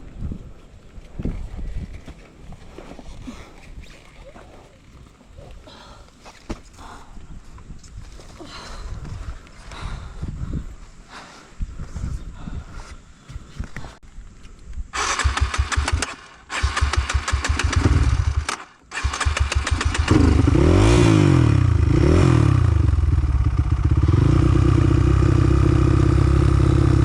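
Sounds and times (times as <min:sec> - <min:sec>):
motorcycle engine cranking: 0:15.0 - 0:21.4
motorcycle engine revving: 0:15.0 - 0:27.0.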